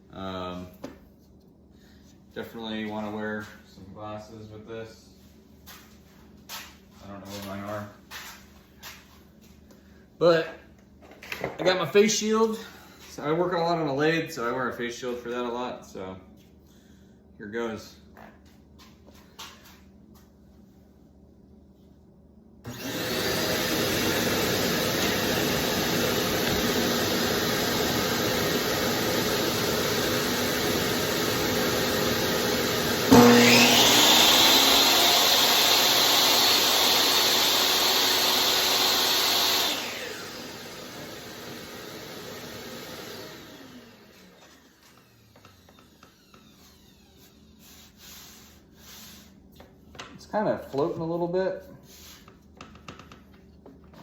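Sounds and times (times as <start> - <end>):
table saw spinning up and running: 22.7 - 47.6.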